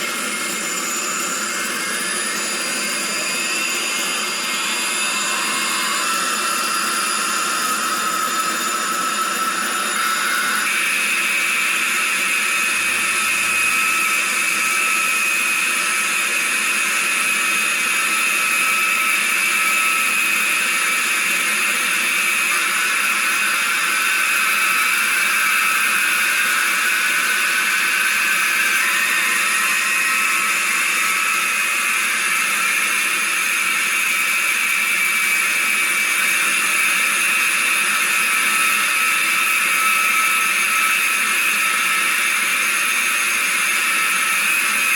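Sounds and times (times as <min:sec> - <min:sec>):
jet engine whine from speaker: 0:00.0 - 0:44.9.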